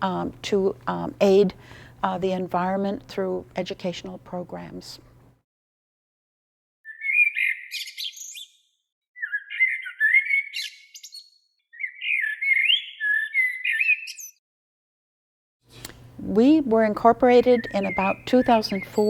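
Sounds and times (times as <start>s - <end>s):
songbird singing: 6.9s - 14.4s, 17.0s - 19.0s.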